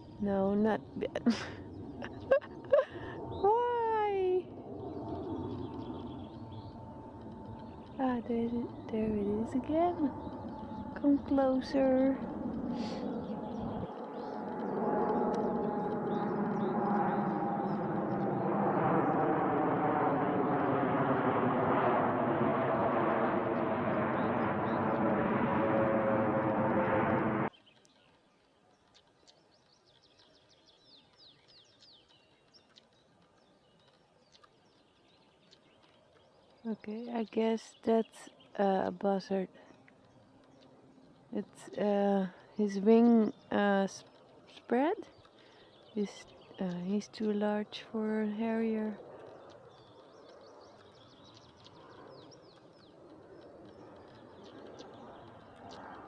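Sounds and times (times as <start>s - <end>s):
bird chirps: 0.0s - 19.2s, 27.5s - 56.0s
small songbirds singing: 0.0s - 19.2s, 27.5s - 56.0s
low rush of wind: 0.0s - 56.0s
loud rushing noise: 21.4s - 27.5s.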